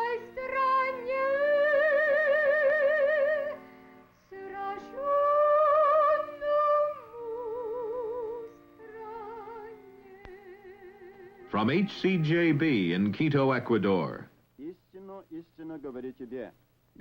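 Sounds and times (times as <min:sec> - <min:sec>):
woman singing a slow hymn: 0:00.0 - 0:03.6, 0:04.2 - 0:11.5
sustained accompanying chords: 0:11.4 - 0:14.2.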